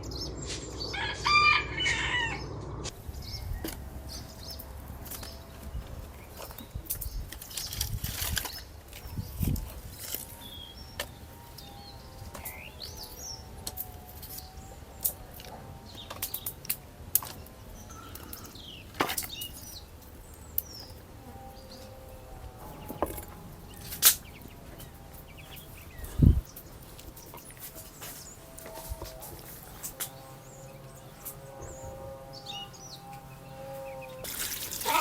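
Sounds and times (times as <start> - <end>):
birds chirping: 0.0 - 35.0
faint wavering hum: 0.0 - 35.0.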